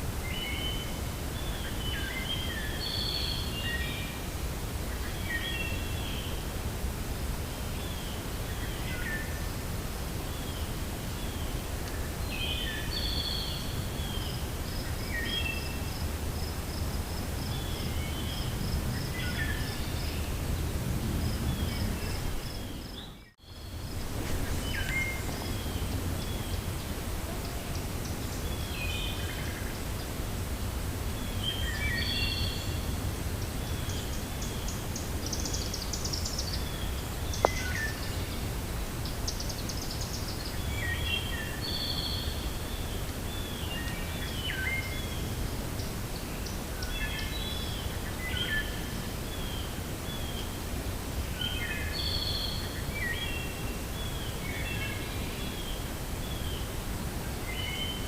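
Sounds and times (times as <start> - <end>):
wind rumbling: 3.6 - 39.6
birds chirping: 17.2 - 30.2.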